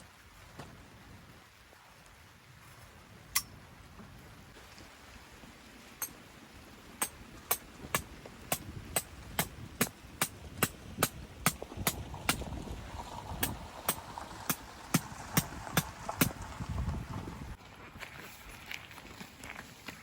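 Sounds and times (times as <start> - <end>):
hammer striking tent peg: 7.0 - 12.4.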